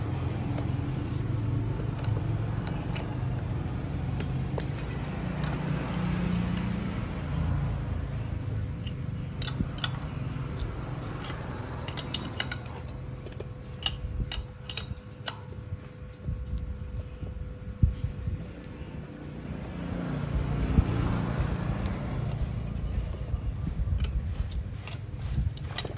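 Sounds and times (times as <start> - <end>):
engine rumbling: 0.0 - 25.9
metallic clinks and taps: 2.0 - 6.8, 8.8 - 15.6.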